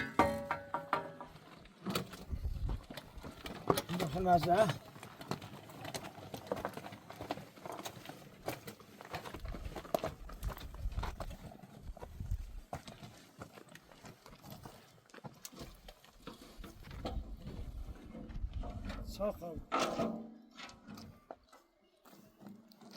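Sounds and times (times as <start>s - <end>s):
irregular clicks and knocks: 0.0s - 2.0s.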